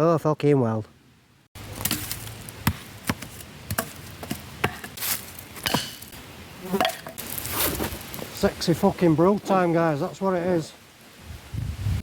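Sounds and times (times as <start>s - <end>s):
faint hiss: 5.0s - 12.0s.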